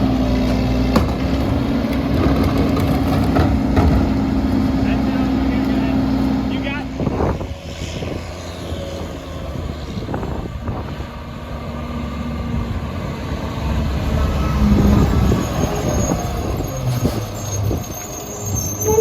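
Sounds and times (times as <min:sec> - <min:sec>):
garbage truck diesel engine running: 0:00.0 - 0:07.4, 0:11.2 - 0:19.0.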